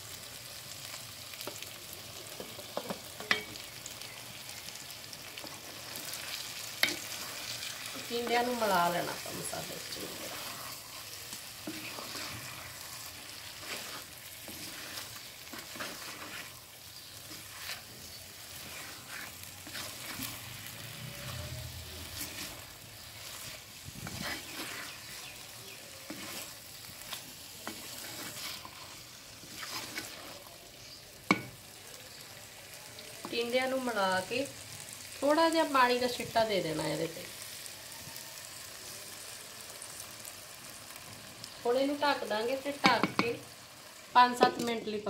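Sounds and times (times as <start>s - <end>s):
vegetables sizzling in oil: 0.0s - 45.0s
wooden spatula scraping clay pot: 5.4s - 30.5s.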